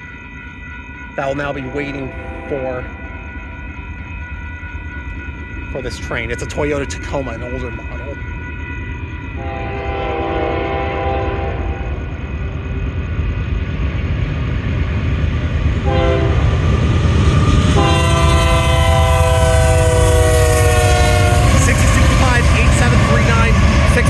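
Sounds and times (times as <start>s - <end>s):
train rumble: 0.0s - 24.0s
locomotive air horn: 9.4s - 12.0s, 15.8s - 16.7s, 17.7s - 24.0s.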